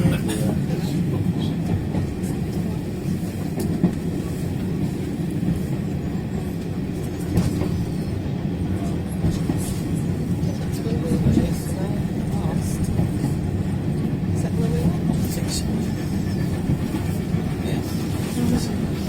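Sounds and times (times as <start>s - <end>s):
train rumbling on track: 0.0s - 19.0s.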